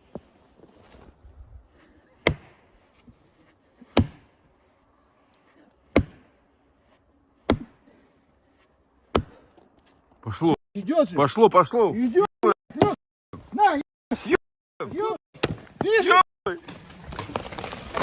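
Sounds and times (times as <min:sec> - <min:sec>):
axe chopping tree trunk: 0:02.2 - 0:03.0, 0:03.9 - 0:04.4, 0:05.8 - 0:06.4, 0:07.4 - 0:07.9, 0:09.0 - 0:09.6, 0:15.4 - 0:15.9.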